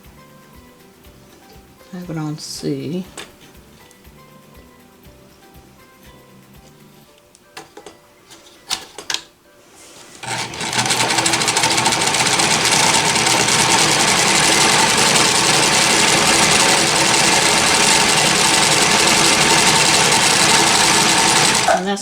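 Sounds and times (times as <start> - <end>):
sewing machine running: 10.2 - 22.0.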